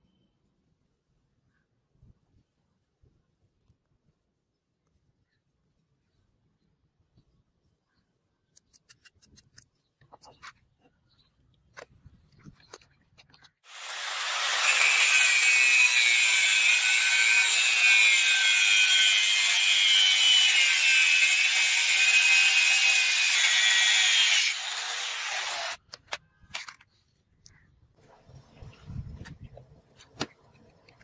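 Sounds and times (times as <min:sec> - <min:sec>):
power tool rasping with whine: 0:13.7 - 0:25.8.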